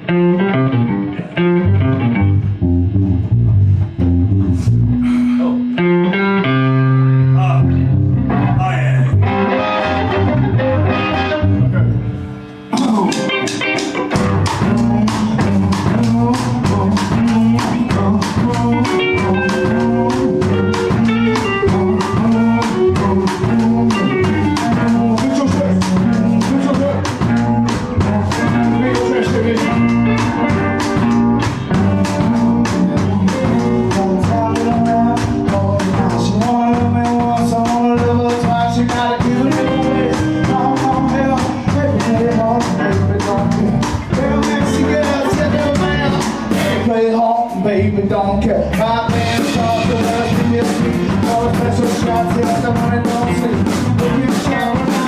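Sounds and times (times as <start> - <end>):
blues rock band playing: 0.0 - 55.0
drum kit beating: 12.6 - 48.0, 48.6 - 55.0.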